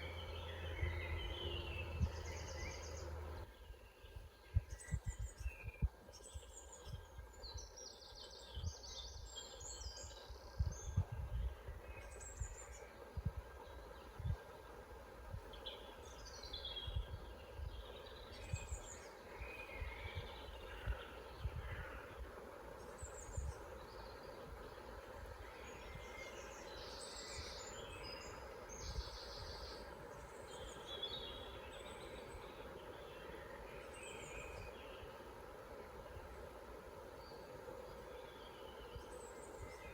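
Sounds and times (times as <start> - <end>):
birds chirping and trilling: 0.0 - 14.6
background hiss: 0.0 - 39.9.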